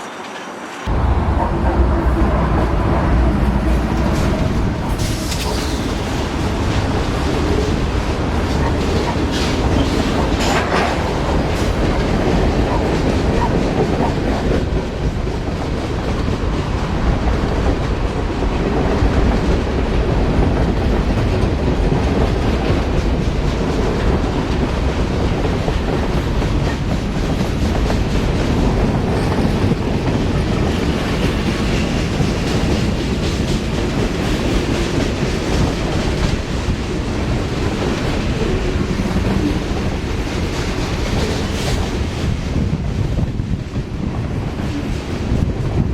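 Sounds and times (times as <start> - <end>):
railroad cars rumbling past: 0.0 - 45.9
wheels clacking over rail joints: 0.3 - 19.6.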